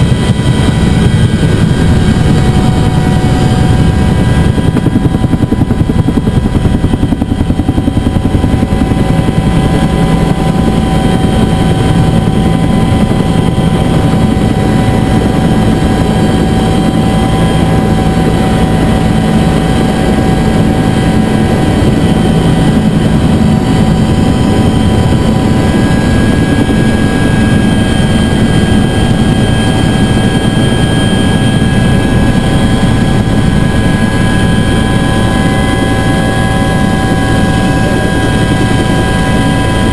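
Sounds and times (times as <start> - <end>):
helicopter rotor beat: 0.0 - 39.9
turbine engine whine: 0.0 - 39.9.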